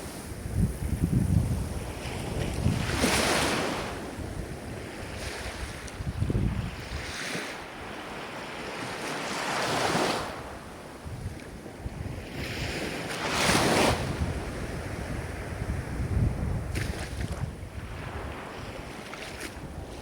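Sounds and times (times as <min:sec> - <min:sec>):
ocean surf: 0:00.0 - 0:00.7, 0:06.7 - 0:11.0.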